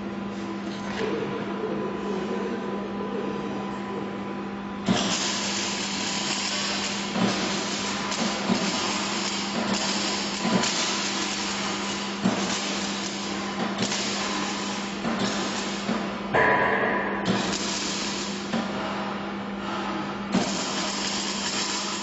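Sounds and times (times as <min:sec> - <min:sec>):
machine humming: 0:00.0 - 0:22.0
sharp knocks: 0:16.4 - 0:17.4.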